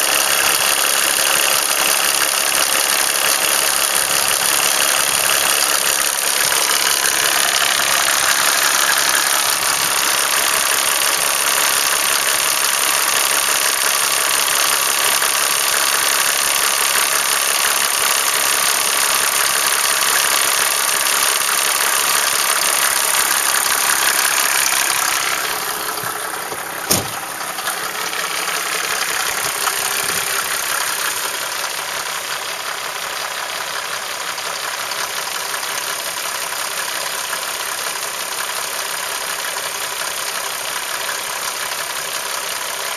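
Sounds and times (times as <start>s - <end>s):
diesel engine idling: 0.0s - 42.9s
sharp knock: 26.5s - 27.2s.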